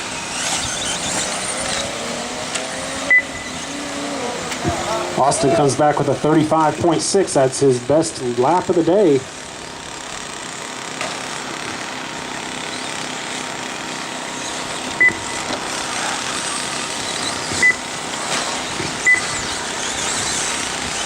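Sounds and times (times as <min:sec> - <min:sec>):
radio-controlled trucks whirring: 0:00.0 - 0:21.0
short high beeps: 0:03.1 - 0:03.6, 0:15.0 - 0:15.4.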